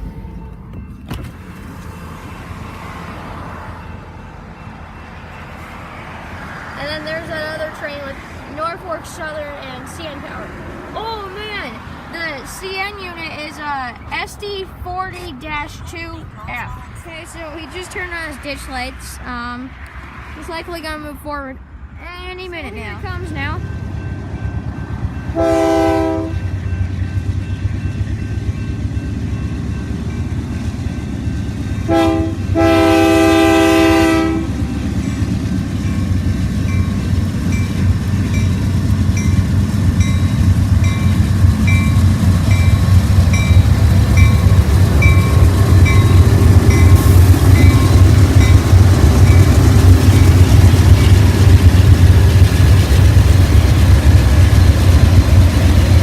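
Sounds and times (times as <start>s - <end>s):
diesel engines rumbling: 0.0s - 56.0s
locomotive air horn blasts: 25.4s - 26.5s, 31.8s - 34.6s.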